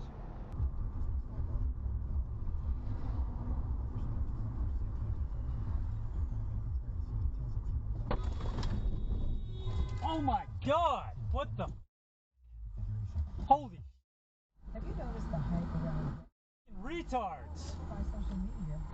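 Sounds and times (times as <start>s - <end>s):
car driving road rumble: 0.0s - 10.3s, 14.6s - 18.9s.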